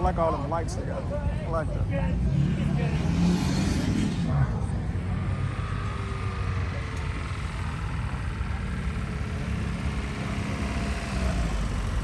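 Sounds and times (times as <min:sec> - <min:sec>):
vehicle engine running slowly: 0:04.2 - 0:12.0.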